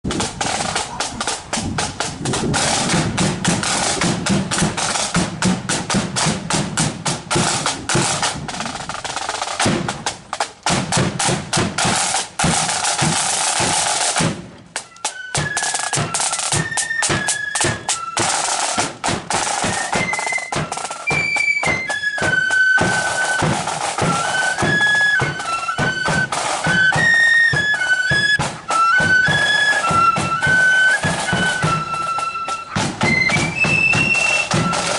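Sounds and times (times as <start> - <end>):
bass drum: 0.1 - 14.5
snare drum rolls: 0.1 - 34.9
flutes playing high melody: 14.8 - 34.9.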